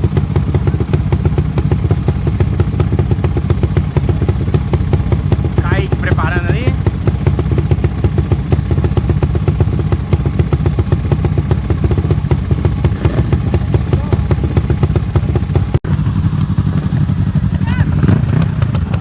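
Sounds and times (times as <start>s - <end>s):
motorcycle engines running loudly: 0.0s - 19.0s.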